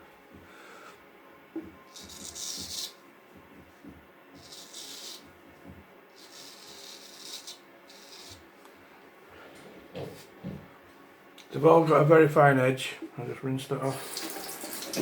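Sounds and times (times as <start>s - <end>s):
razor blade rubbing hiss: 1.9s - 3.0s, 4.4s - 5.2s, 6.2s - 8.4s.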